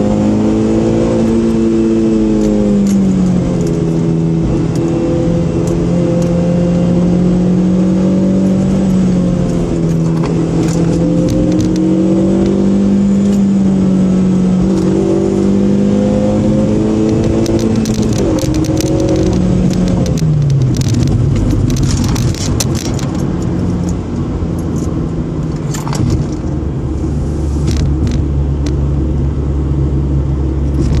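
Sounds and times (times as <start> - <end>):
car engine and road noise: 0.0 - 31.0
sharp clicks and rattles: 2.4 - 5.0, 8.4 - 12.6, 16.9 - 26.9, 27.6 - 28.8, 30.6 - 31.0.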